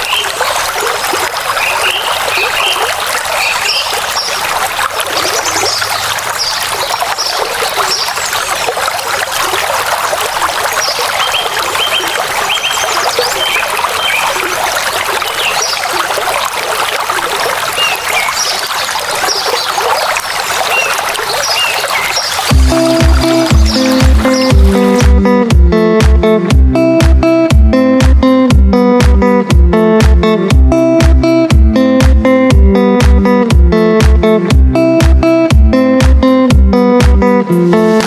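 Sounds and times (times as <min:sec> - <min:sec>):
high bird chirps: 0:00.0 - 0:00.6, 0:01.6 - 0:04.4, 0:10.8 - 0:14.5, 0:15.2 - 0:15.8, 0:17.8 - 0:25.0
running water: 0:00.0 - 0:30.3, 0:30.9 - 0:38.0.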